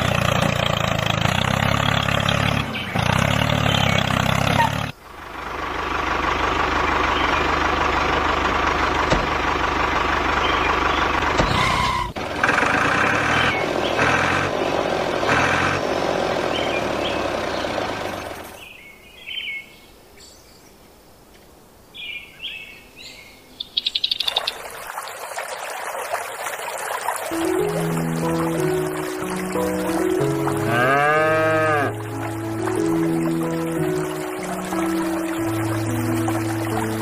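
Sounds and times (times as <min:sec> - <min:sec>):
bird chirps: 0:01.8 - 0:04.7, 0:22.0 - 0:24.7.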